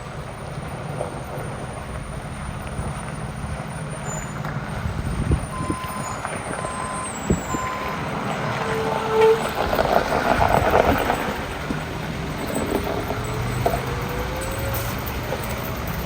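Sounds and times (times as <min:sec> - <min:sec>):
diesel truck engine running: 0:00.0 - 0:16.0
reversing alarm beeps: 0:05.5 - 0:08.9.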